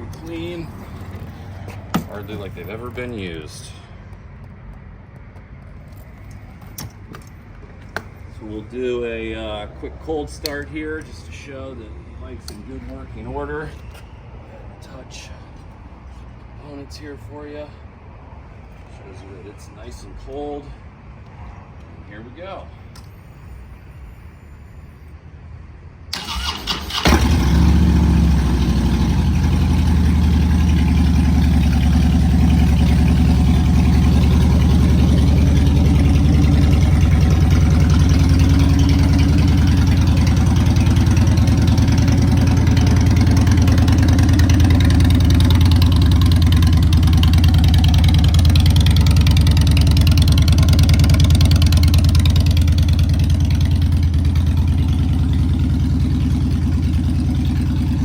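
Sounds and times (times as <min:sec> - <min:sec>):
starter motor cranking: 0:26.2 - 0:27.8
motorcycle engine idling: 0:26.2 - 0:58.0.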